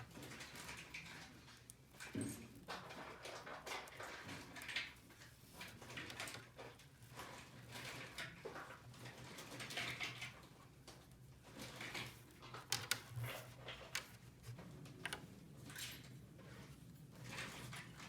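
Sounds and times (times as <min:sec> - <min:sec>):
plastic toy pieces clicking: 0:12.6 - 0:13.2.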